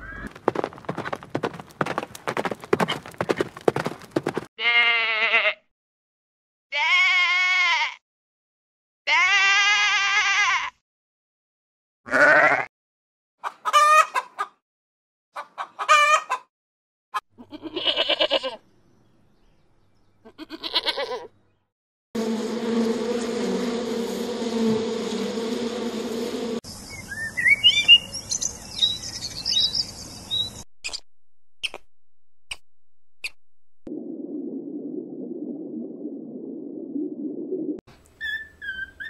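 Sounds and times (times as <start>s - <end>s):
honeybees buzzing: 22.2s - 27.0s.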